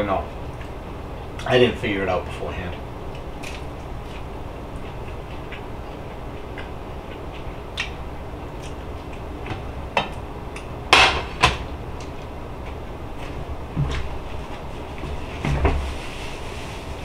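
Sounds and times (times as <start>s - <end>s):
low hum: 0.0s - 17.0s
person chewing: 3.1s - 9.5s.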